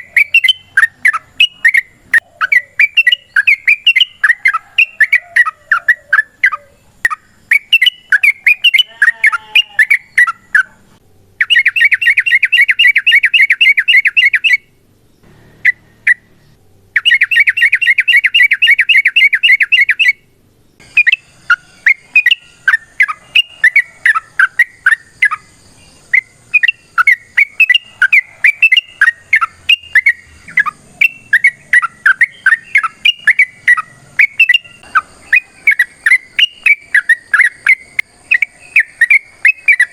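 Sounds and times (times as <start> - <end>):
bulbul whistled calls: 0.0 - 10.8, 11.4 - 39.9
bird rattling trill: 20.8 - 39.9.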